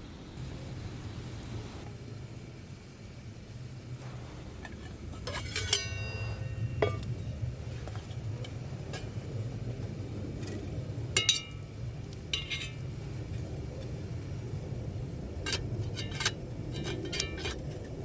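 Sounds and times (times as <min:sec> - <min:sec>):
steady low hum: 0:00.0 - 0:18.0
metal cookware clinking: 0:04.6 - 0:07.1, 0:11.2 - 0:11.6, 0:12.4 - 0:12.8, 0:15.5 - 0:17.9.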